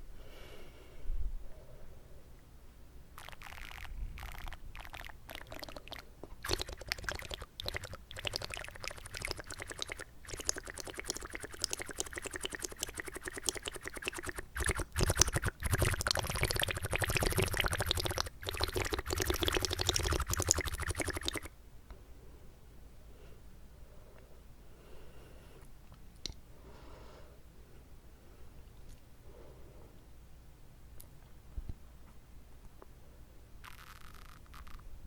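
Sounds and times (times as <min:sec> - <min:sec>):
water swishing in mouth: 0:03.2 - 0:21.5.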